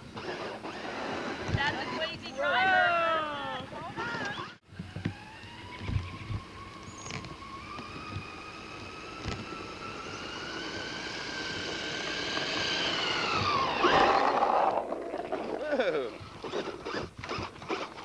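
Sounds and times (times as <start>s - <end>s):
toy car motor whining: 0.0s - 2.2s, 4.0s - 18.0s.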